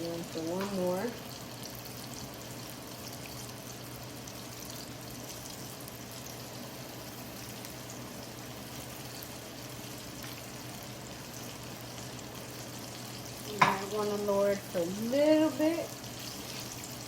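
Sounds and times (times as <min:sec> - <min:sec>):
chicken frying in hot oil: 0:00.0 - 0:17.0.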